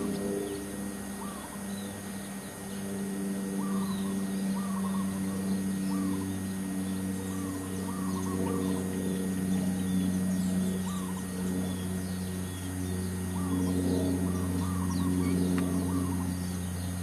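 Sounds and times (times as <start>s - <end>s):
birds calling: 0.0s - 17.0s
steady low hum: 0.0s - 17.0s.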